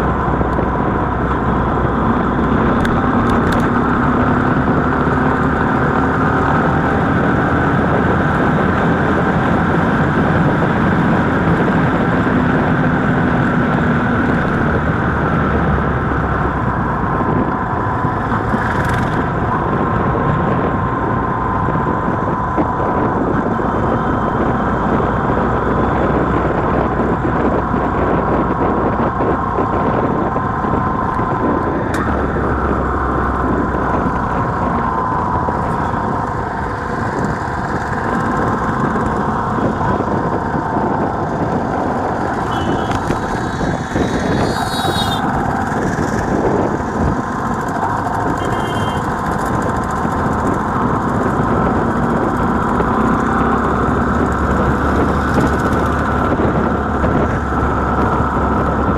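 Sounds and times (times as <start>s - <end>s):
motorcycle engine running: 0.0s - 58.9s
road and traffic noise: 0.0s - 58.9s.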